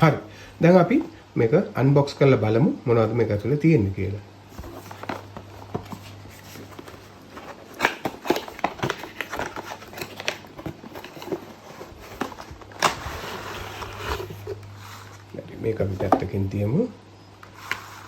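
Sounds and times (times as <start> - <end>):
cardboard box clicks and rustles: 4.5 - 15.2
sliding rustle: 8.9 - 15.4, 17.5 - 18.0.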